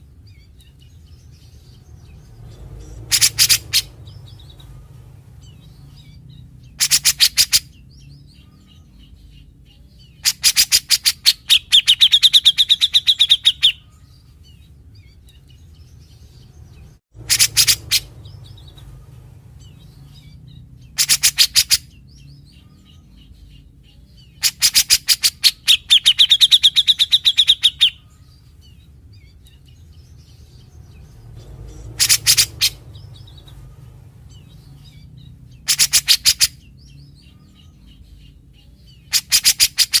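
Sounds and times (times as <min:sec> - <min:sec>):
low steady hum: 0:00.0 - 0:10.3, 0:13.6 - 0:21.0, 0:25.4 - 0:39.2
bird harsh stuttering calls: 0:01.6 - 0:08.5, 0:10.1 - 0:13.9, 0:17.2 - 0:22.3, 0:24.3 - 0:28.1, 0:30.2 - 0:40.0.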